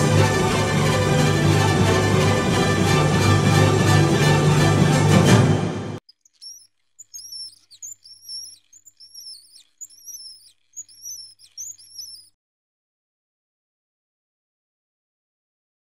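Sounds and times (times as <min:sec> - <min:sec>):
music: 0:00.0 - 0:06.0
bird chirping: 0:06.0 - 0:12.4.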